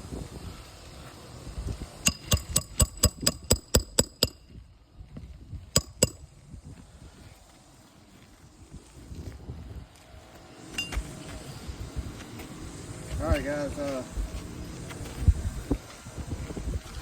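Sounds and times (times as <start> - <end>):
hammer striking metal: 2.0 - 4.5, 5.8 - 6.2.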